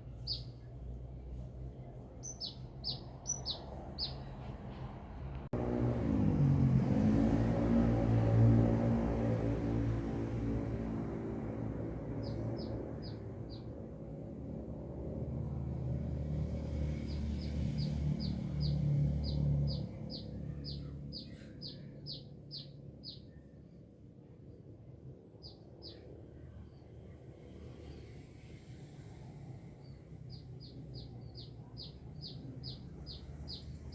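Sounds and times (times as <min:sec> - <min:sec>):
sunbird high sharp chirps: 0:02.2 - 0:04.3.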